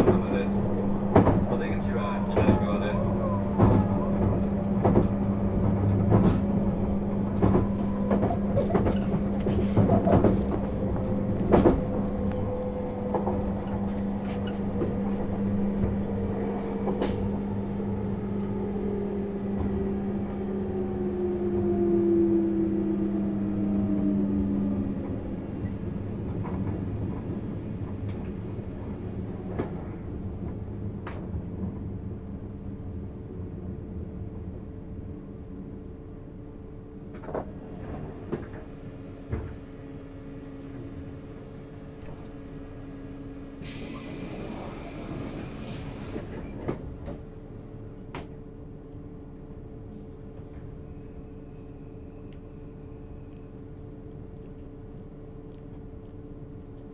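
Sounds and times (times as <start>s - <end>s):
train motor whine: 0.0s - 26.8s, 43.2s - 47.3s
train car rumbling on rails: 0.0s - 56.9s
hiss: 43.6s - 46.4s.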